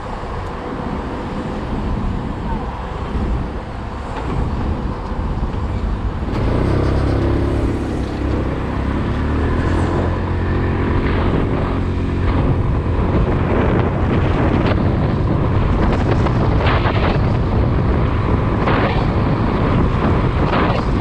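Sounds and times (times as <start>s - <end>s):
wind noise: 0.0s - 21.0s
motorcycle engine accelerating: 5.7s - 21.0s.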